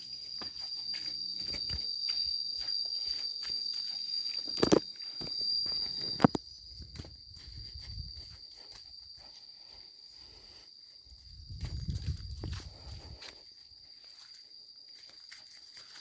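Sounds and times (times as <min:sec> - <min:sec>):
high insect buzz: 0:00.0 - 0:16.0
rustling and crunching: 0:04.2 - 0:08.1.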